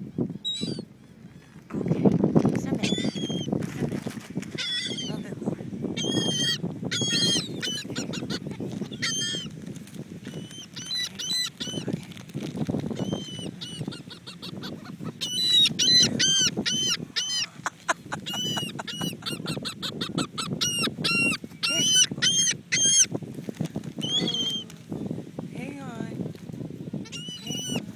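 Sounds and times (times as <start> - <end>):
steady low rumble: 0.0 - 20.5
seagulls squawking: 2.8 - 3.5, 4.5 - 5.3, 6.0 - 9.5, 10.3 - 11.9, 12.9 - 23.1, 24.0 - 24.6, 27.0 - 27.9.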